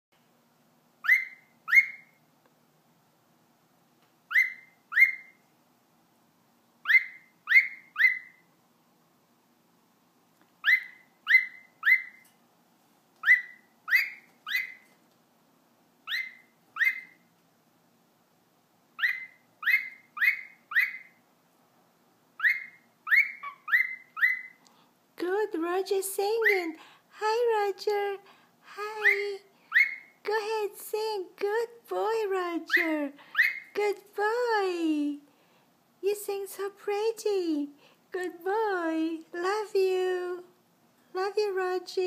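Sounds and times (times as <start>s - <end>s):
cockatiel whistling: 1.0s - 2.2s, 4.3s - 5.4s, 6.8s - 8.4s, 10.6s - 12.2s, 13.2s - 14.8s, 16.1s - 17.2s, 19.0s - 21.2s, 22.4s - 24.6s, 29.7s - 30.1s, 33.3s - 33.7s.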